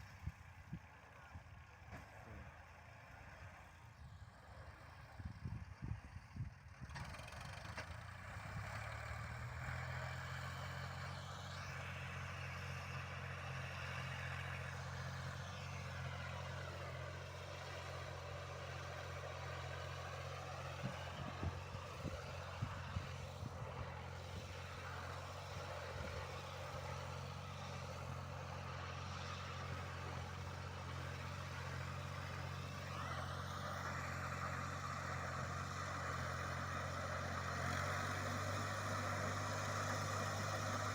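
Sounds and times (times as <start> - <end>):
diesel machinery engine running: 0.0 - 40.9.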